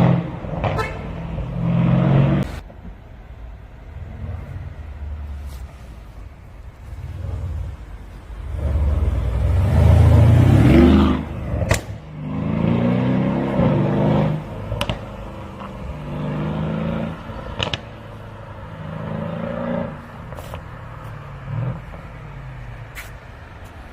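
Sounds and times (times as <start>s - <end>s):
exhaust crack: 0.0s - 2.9s, 6.7s - 19.1s
car engine accelerating hard: 8.4s - 20.1s.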